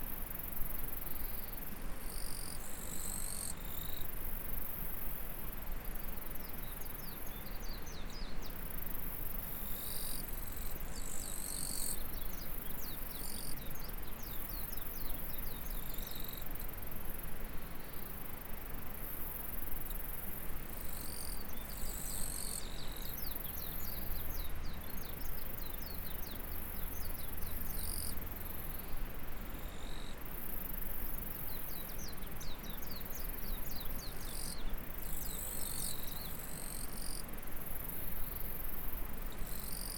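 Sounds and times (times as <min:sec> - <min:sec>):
insects buzzing: 0:17.8 - 0:39.9.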